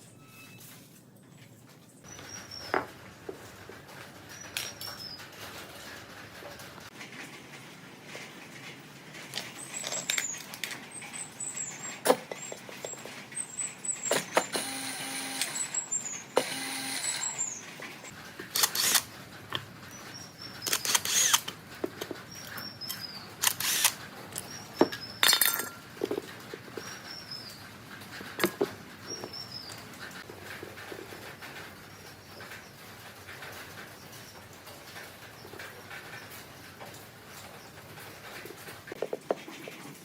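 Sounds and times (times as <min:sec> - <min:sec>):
small birds chirping: 0:01.8 - 0:06.0, 0:09.4 - 0:18.2, 0:19.6 - 0:39.0
small power tool buzzing: 0:14.5 - 0:15.8, 0:16.4 - 0:17.5, 0:20.9 - 0:21.4, 0:23.5 - 0:23.9
metal parts clicking and knocking: 0:20.6 - 0:27.1.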